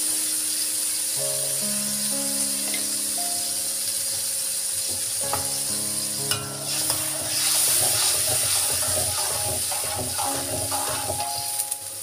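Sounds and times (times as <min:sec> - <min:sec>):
chili paste sizzling: 0:00.0 - 0:12.0
spatula scraping pan: 0:06.6 - 0:11.6.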